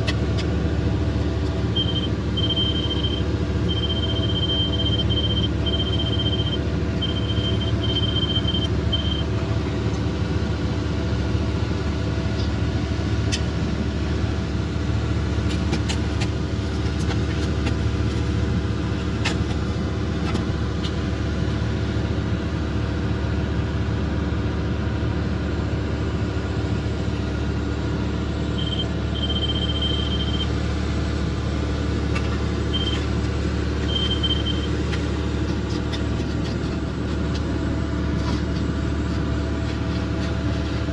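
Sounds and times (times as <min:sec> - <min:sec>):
diesel engine running: 0:00.0 - 0:40.9
high electronic beeps: 0:01.8 - 0:09.2, 0:28.6 - 0:30.5, 0:32.7 - 0:33.1, 0:33.8 - 0:34.7.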